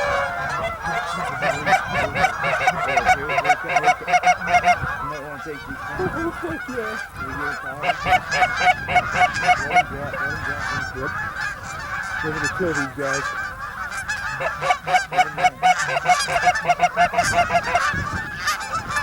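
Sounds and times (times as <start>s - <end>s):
geese honking: 0.0s - 19.0s.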